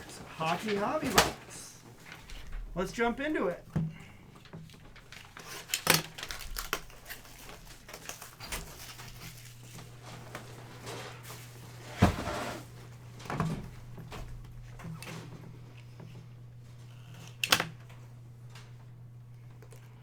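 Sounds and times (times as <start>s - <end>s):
cardboard and wrapper rustling: 0.0s - 2.5s, 4.6s - 12.7s.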